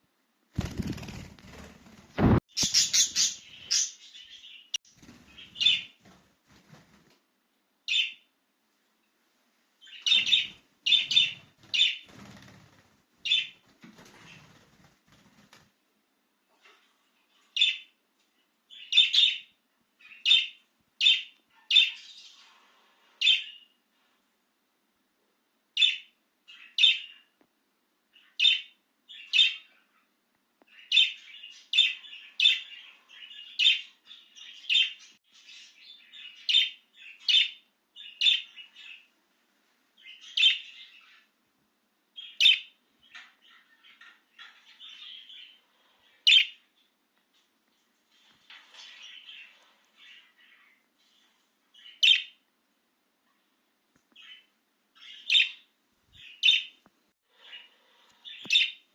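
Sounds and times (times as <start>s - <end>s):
budgerigar sharp chirps: 2.2s - 4.0s.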